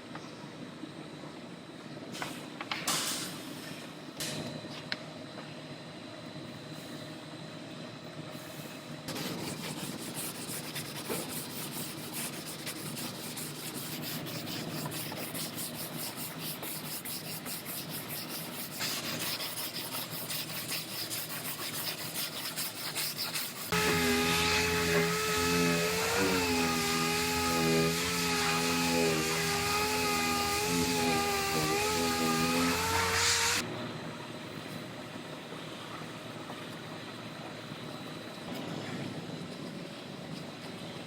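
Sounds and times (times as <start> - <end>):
hand rubbing strokes: 9.2 - 25.4
power tool whine: 23.7 - 33.6.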